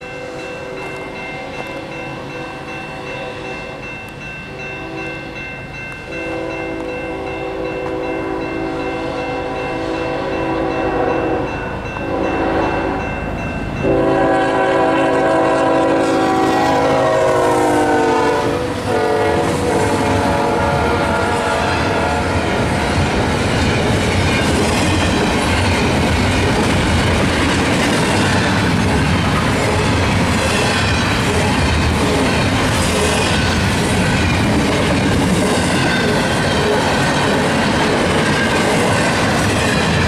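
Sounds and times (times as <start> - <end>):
train rumble: 0.0 - 40.0
locomotive air horn blasts: 6.2 - 13.1, 13.8 - 22.6.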